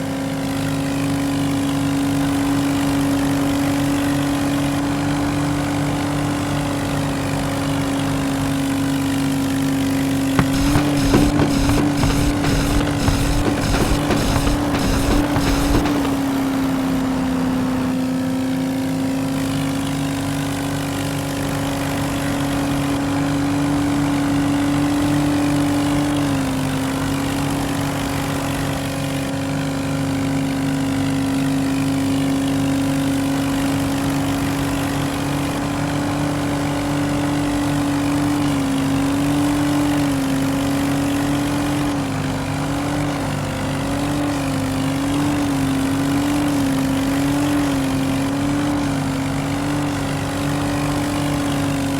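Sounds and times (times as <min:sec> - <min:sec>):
engine running hard: 0:10.4 - 0:16.5.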